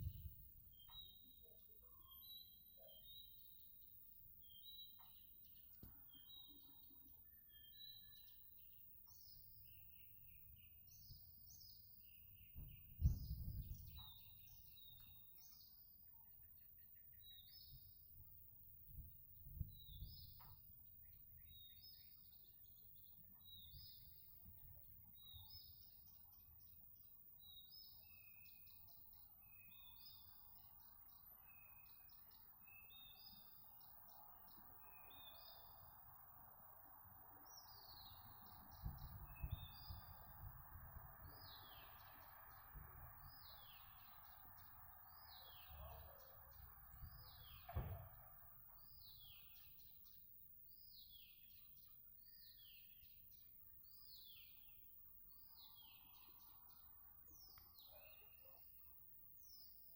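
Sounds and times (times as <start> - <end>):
songbird singing: 0.0 - 59.9
low thumps: 12.5 - 14.0.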